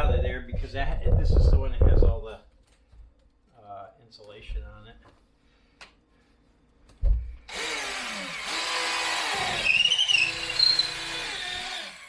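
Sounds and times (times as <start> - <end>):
thump: 7.0 - 7.4
power drill running: 7.5 - 12.0.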